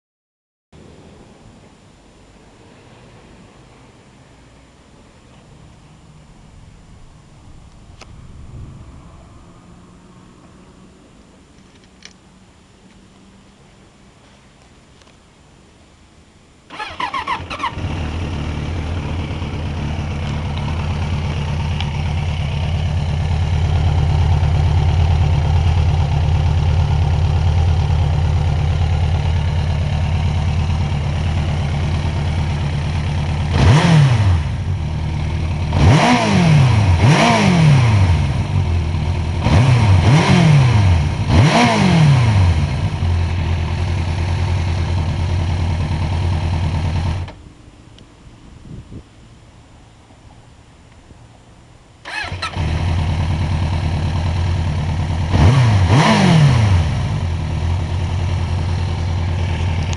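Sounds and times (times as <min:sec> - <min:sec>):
engine revving: 0:16.7 - 0:47.4, 0:52.0 - 0:59.9
motorcycle engine starting and idling: 0:16.7 - 0:47.6, 0:51.9 - 0:59.9.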